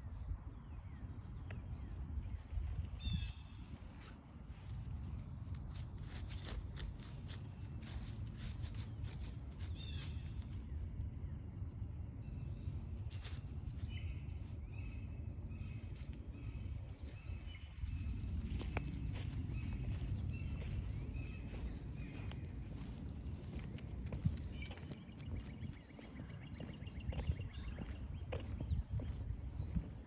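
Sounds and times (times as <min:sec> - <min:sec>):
steady low rumble: 0:00.0 - 0:30.0
footsteps crunching on trail: 0:02.2 - 0:10.7, 0:16.8 - 0:30.0
birds calling: 0:02.4 - 0:11.0, 0:13.1 - 0:30.0.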